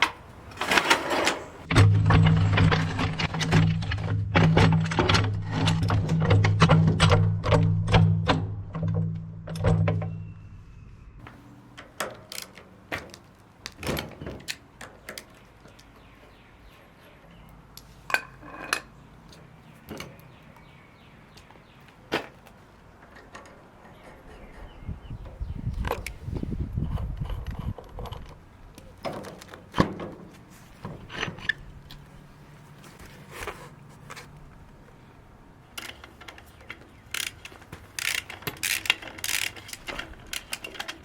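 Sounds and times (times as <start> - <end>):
short squeak: 10.1 - 11.2
metallic clicks and knocks: 35.8 - 41.0.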